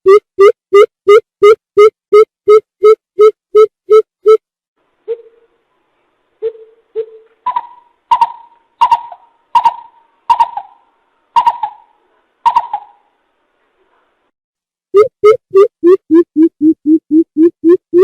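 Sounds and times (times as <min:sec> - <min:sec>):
bird hooting: 0:06.4 - 0:13.0.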